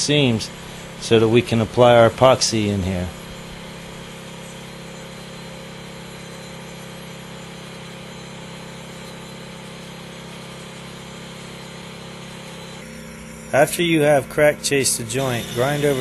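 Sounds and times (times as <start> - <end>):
crack chaser motor humming: 0.0 - 16.0.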